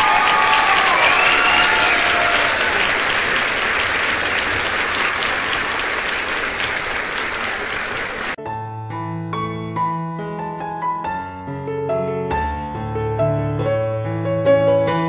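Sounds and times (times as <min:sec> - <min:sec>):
crowd applause: 0:00.0 - 0:08.4
soft piano music: 0:08.4 - 0:15.0.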